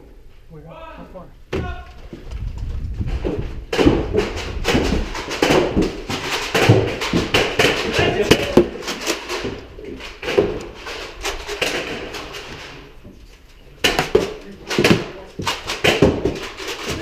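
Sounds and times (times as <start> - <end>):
sharp knocks and clatters: 1.5 - 12.9, 13.8 - 17.0.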